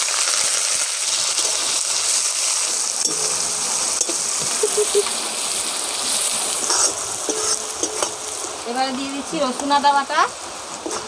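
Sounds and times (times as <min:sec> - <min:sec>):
onion paste sizzling in oil: 0:00.0 - 0:11.0.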